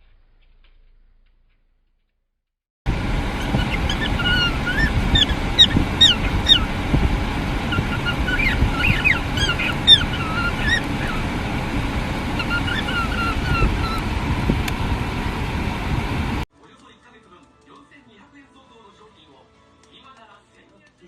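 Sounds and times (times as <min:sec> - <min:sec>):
birds calling: 0:02.9 - 0:16.4
steady low rumble: 0:02.9 - 0:16.5.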